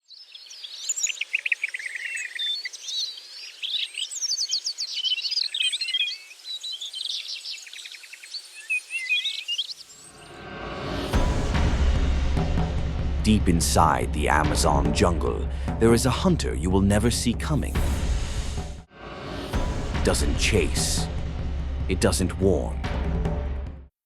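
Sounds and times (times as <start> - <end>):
tropical birds chirping and trilling: 0.0 - 10.4
low musical swell: 10.1 - 15.9, 18.1 - 22.8.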